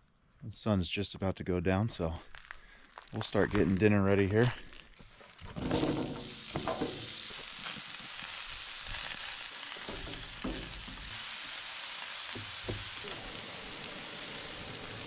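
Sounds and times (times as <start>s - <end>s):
food sizzling: 5.0s - 15.0s.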